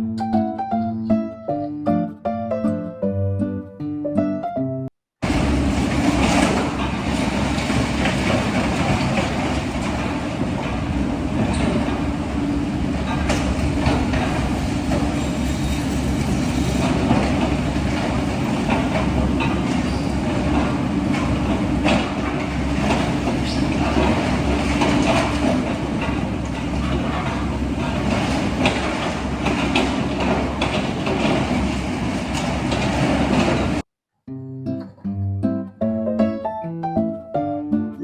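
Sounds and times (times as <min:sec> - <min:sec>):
plucked-string tune: 0:00.0 - 0:04.9, 0:34.3 - 0:38.0
diesel machinery rumble: 0:05.2 - 0:33.8
metallic clanks and rattles: 0:05.8 - 0:33.8.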